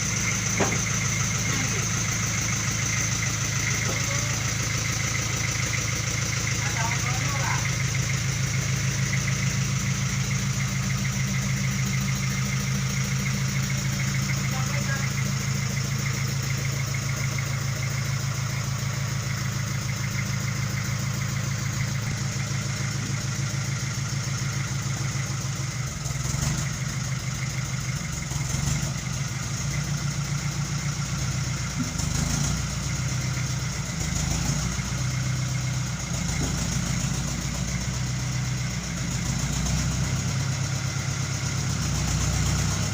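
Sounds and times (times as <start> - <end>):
sawmill engine humming: 0.0 - 42.9.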